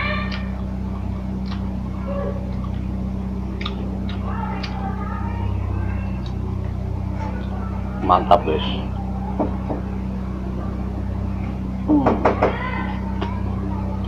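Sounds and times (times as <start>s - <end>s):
faint pitched sound: 0.0s - 14.0s
steady low hum: 0.0s - 14.0s
person chewing: 0.1s - 6.7s
small clicks and smacks: 1.4s - 1.8s, 3.5s - 4.8s.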